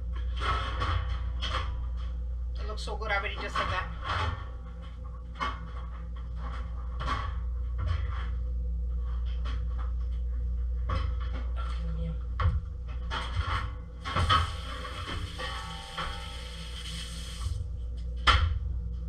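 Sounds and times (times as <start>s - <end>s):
steady low hum: 0.0s - 19.0s
pot and utensils clattering: 13.2s - 17.4s.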